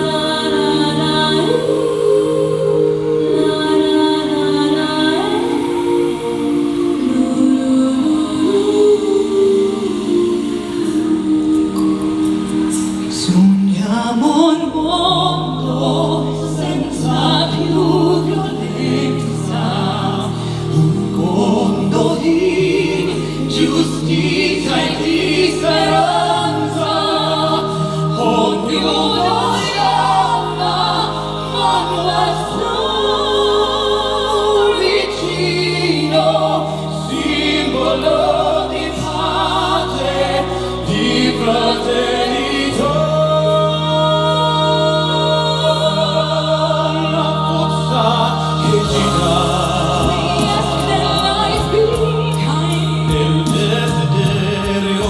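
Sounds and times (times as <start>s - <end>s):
vocal ensemble singing in harmony: 0.0s - 55.0s
low bass notes: 14.6s - 55.0s.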